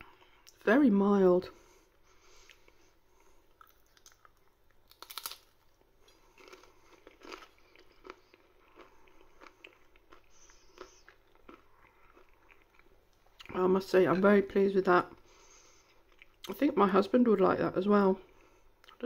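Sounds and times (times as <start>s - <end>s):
person chewing crunchy cracker: 3.5s - 13.5s.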